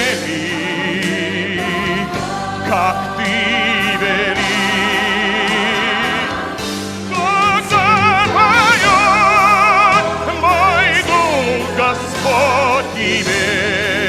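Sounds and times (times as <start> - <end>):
hymn singing: 0.0 - 14.0
instrumental accompaniment: 0.0 - 14.0.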